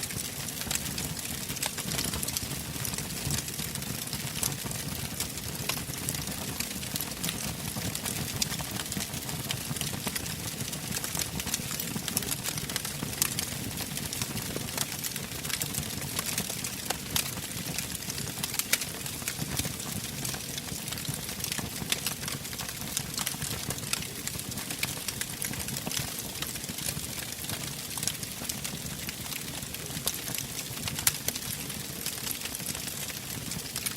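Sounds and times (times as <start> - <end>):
fire crackling and popping: 0.0 - 33.9
wood fire burning: 0.1 - 33.9.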